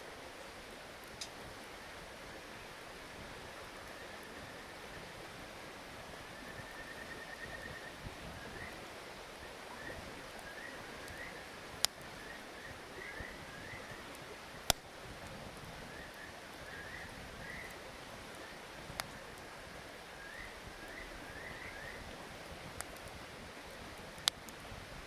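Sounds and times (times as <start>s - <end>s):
steady hiss: 0.0s - 25.0s
wood fire popping: 1.0s - 1.6s, 9.8s - 25.0s.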